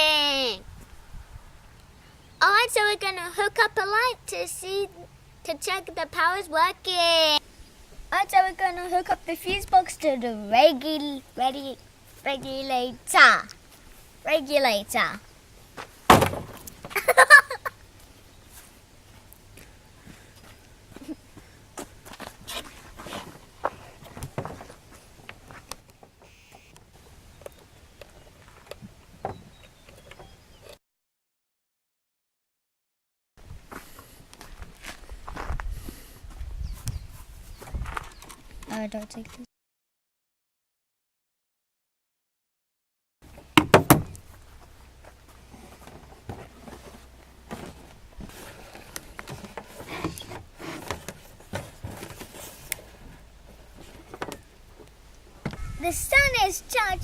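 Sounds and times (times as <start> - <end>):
knock: 43.6 - 44.1.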